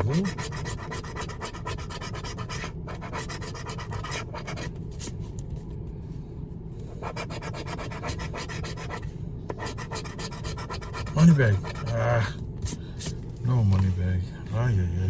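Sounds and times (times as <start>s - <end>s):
scratch-off ticket being scratched: 0.0s - 4.7s, 7.0s - 12.2s.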